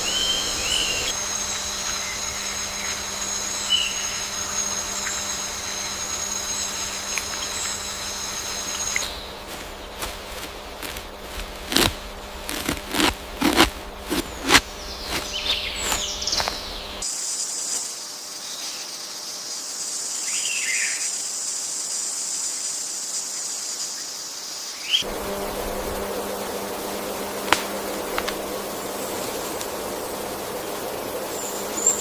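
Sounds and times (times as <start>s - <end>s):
high falling bird calls: 0.0s - 11.0s, 14.0s - 17.0s, 26.0s - 32.0s
high insect buzz: 0.0s - 32.0s.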